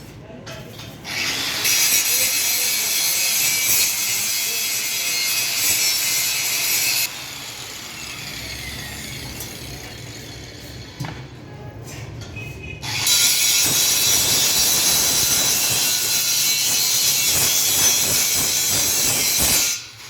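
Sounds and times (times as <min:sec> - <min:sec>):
angle grinder grinding metal: 0:01.0 - 0:10.8, 0:12.9 - 0:20.0.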